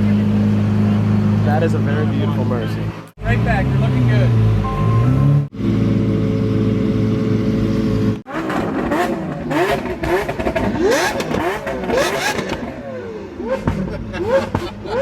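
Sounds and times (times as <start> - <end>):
sports car engines revving: 0.0 - 15.0
steady car engine: 0.0 - 15.0.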